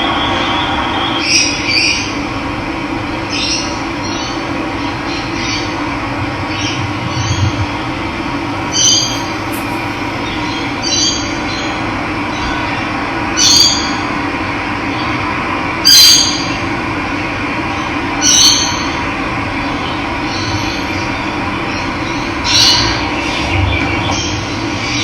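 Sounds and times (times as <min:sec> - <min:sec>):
bird squealing call: 0:08.6 - 0:11.0.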